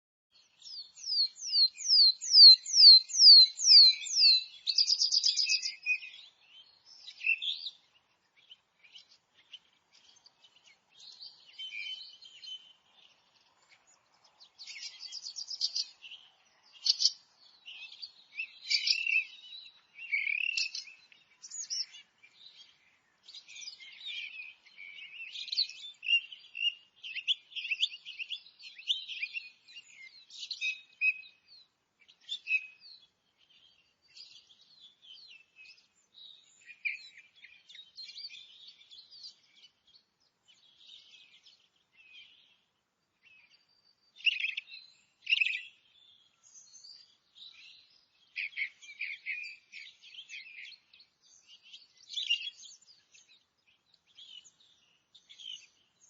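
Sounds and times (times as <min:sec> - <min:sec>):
songbirds chirping: 0:00.3 - 0:56.0.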